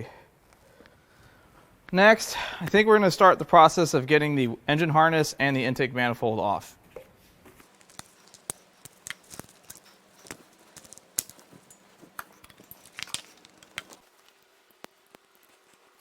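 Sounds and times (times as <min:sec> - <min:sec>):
clicks and rattles of small parts: 0:07.6 - 0:15.9.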